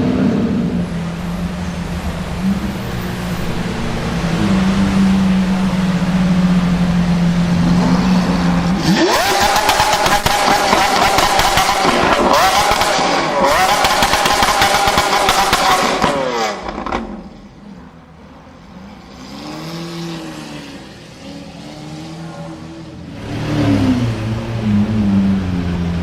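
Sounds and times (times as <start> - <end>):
sports car engine revving: 0.0 - 17.4
loud engine: 0.0 - 17.9
quieter engine: 0.0 - 26.0.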